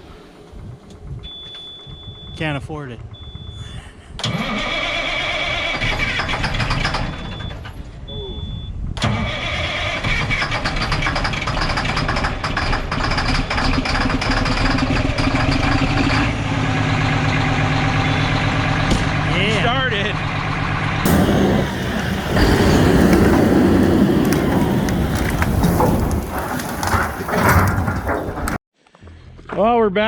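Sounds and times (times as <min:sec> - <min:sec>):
diesel engine starting: 0:04.2 - 0:07.4, 0:09.0 - 0:28.6.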